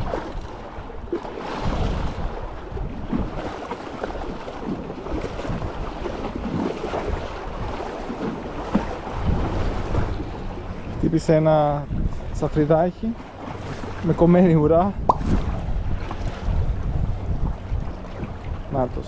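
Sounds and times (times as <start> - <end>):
sea water washing on shore: 0.0 - 19.0
wind buffeting microphone: 0.0 - 19.0.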